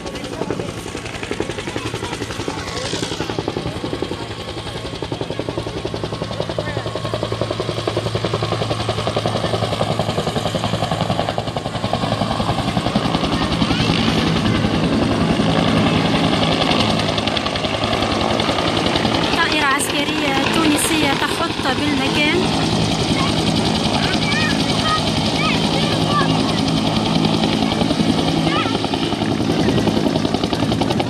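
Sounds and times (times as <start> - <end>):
helicopter rotor chopping: 0.0 - 31.0
turbine drone: 6.6 - 31.0.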